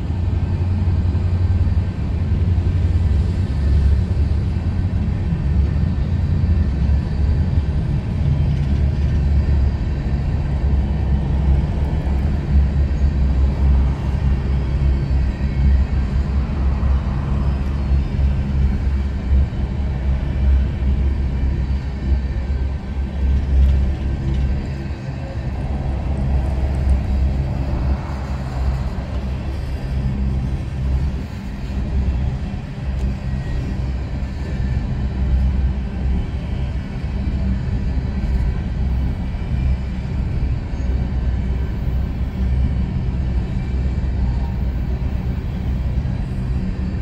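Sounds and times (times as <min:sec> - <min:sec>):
train rolling past: 0:07.4 - 0:36.8.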